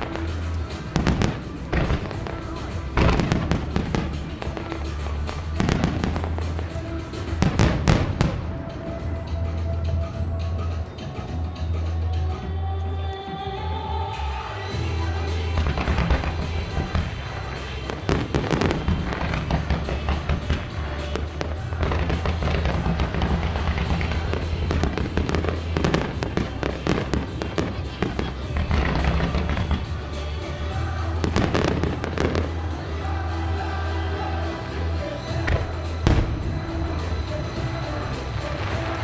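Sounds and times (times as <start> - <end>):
firework shells bursting: 0.0 - 8.8, 35.5 - 39.0
music soundtrack: 0.0 - 39.0.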